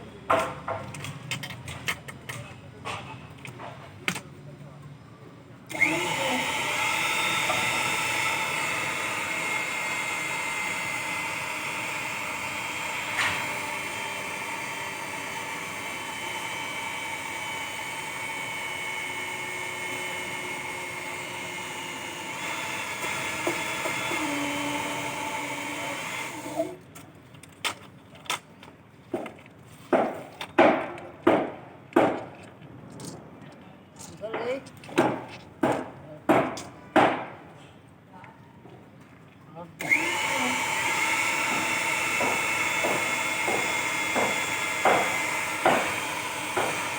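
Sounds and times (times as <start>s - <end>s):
power tool whining: 5.7s - 26.8s, 39.8s - 46.9s
sharp knocks: 29.9s - 32.3s, 34.3s - 37.5s, 42.2s - 46.0s.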